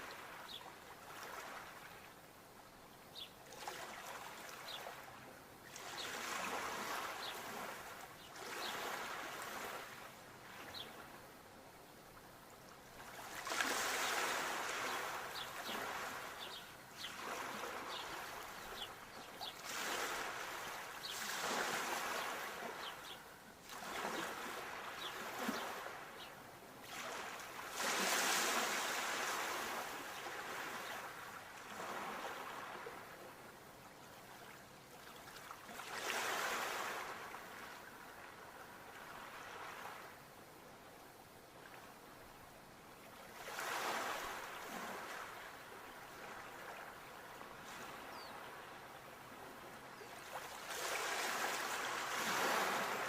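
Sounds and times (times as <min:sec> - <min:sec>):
sea waves breaking: 0:13.1 - 0:16.6, 0:26.9 - 0:31.1, 0:50.3 - 0:53.0.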